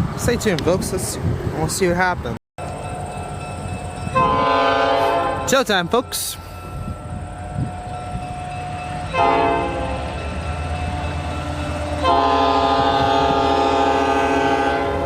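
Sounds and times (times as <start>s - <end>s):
diesel locomotive rumble: 0.0s - 15.0s
locomotive air horn blasts: 4.1s - 5.6s, 9.1s - 10.2s, 11.8s - 15.0s.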